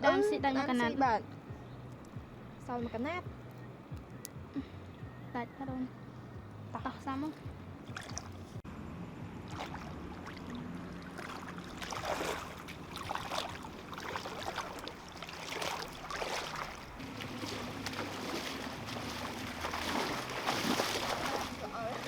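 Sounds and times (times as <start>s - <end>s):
steady low hum: 0.0s - 22.0s
water sloshing and splashing: 7.0s - 8.6s, 9.4s - 22.0s.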